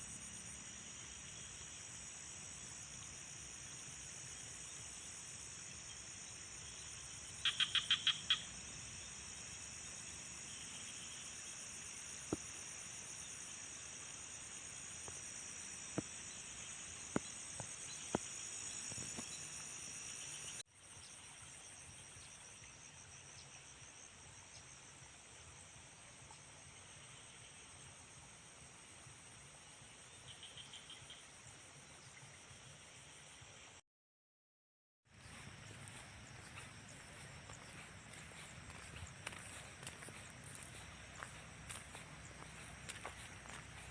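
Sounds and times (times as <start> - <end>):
insects trilling: 0.0 - 20.6, 35.1 - 43.9
frog pulsed call: 7.4 - 8.5, 35.2 - 43.9.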